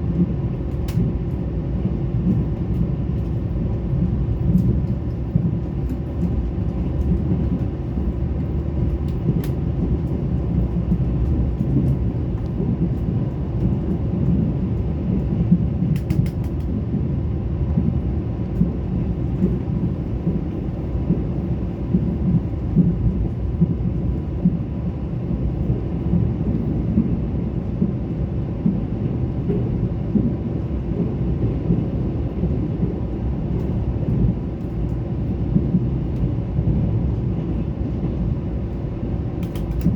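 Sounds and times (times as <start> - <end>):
train rumbling on track: 0.0 - 39.9.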